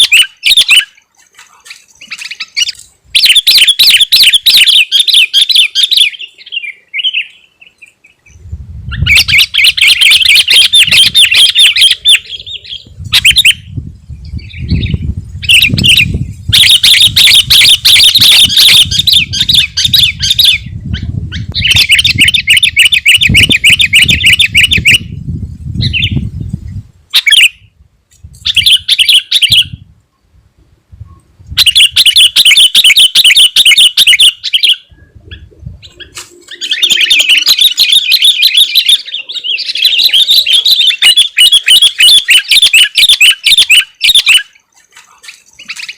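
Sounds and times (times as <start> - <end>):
bulbul singing in chattering bursts: 36.5 - 44.6.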